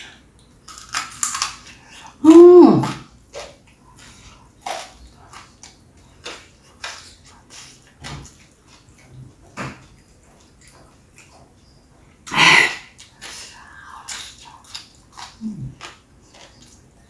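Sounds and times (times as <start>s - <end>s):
hummed voice sound: 2.2s - 3.0s
wet chewing and lip smacks: 9.8s - 11.7s.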